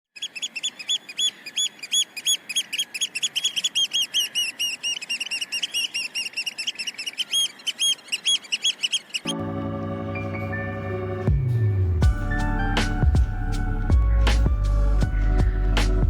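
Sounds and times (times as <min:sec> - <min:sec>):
parrot chicks chirping: 0:00.2 - 0:09.4.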